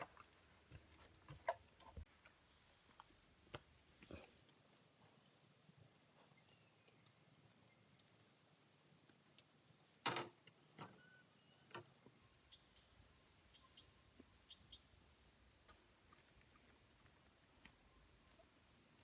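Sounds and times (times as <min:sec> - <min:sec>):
faint high bird chirps: 0:10.8 - 0:15.8.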